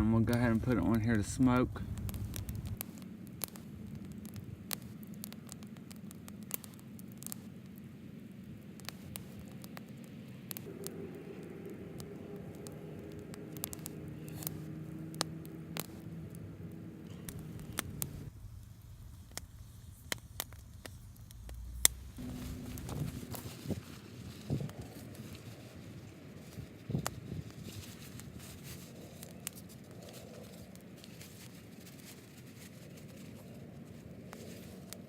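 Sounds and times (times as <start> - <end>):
steady low hum: 0.0 - 35.0
wood fire crackling and popping: 0.0 - 35.0.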